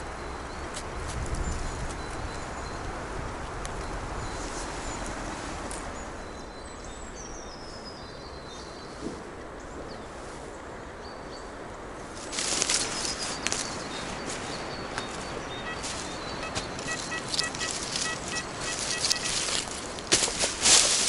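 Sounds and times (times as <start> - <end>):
wind rumble: 0.0 - 7.8
distant road traffic: 0.0 - 21.0
small birds chirping: 0.0 - 21.0
loud rustling and crunching: 12.2 - 21.0.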